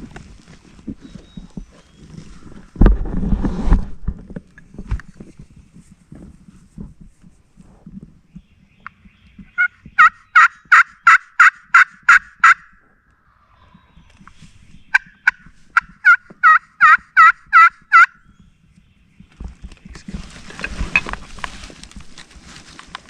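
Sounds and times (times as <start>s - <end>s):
turkey yelps: 14.9s - 18.2s.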